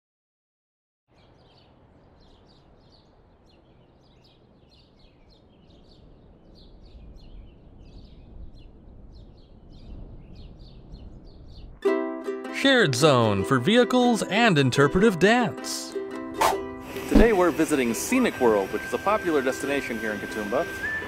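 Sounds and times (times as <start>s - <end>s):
birds chirping: 1.1s - 11.8s, 16.5s - 21.0s.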